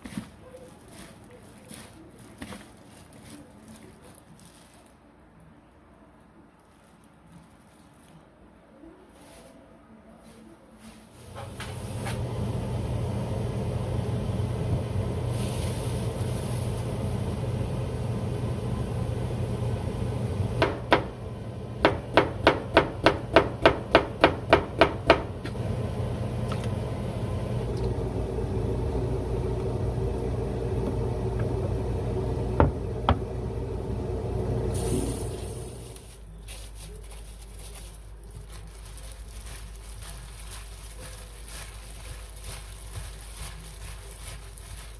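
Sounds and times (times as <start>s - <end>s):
knife chopping on cutting board: 21.8s - 25.3s
low hum: 25.3s - 36.0s.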